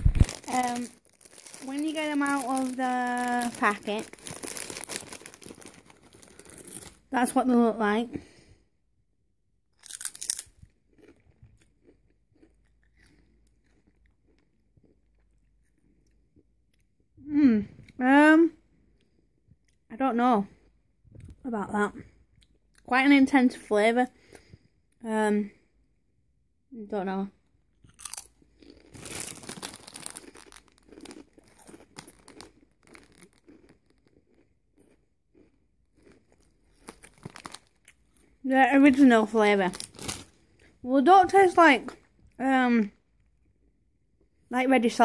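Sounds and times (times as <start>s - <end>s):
crisp chewing crunches: 0.0s - 7.1s, 9.8s - 17.0s, 27.8s - 38.4s, 39.6s - 40.7s.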